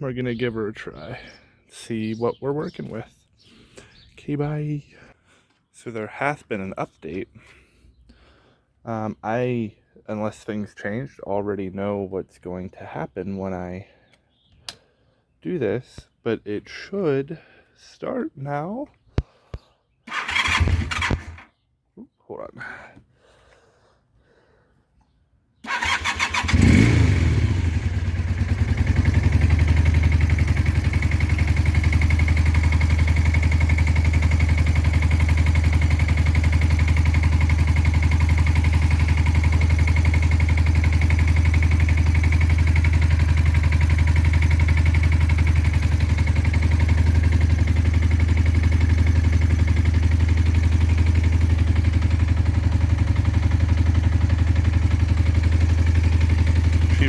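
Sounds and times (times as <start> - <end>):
motorcycle engine cranking: 20.1 - 21.5, 25.7 - 56.9
motorcycle engine revving and idling: 20.1 - 21.5, 25.7 - 57.0.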